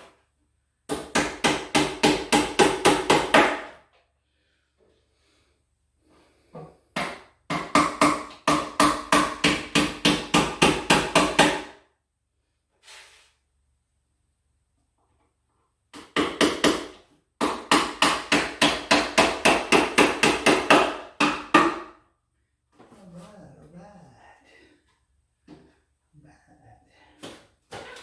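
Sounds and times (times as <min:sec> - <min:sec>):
hammer driving nails into wood: 0:00.9 - 0:03.8, 0:07.0 - 0:11.8, 0:15.9 - 0:22.0.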